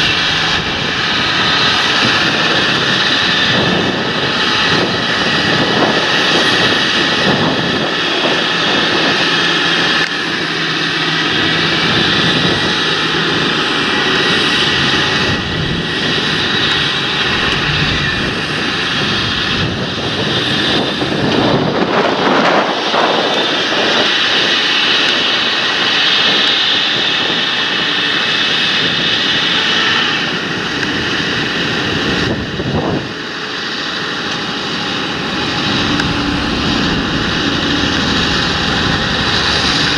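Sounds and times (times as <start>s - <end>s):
high engine whine: 0.0s - 26.2s, 28.1s - 39.9s
tractor diesel engine droning: 10.8s - 20.1s, 33.0s - 39.9s.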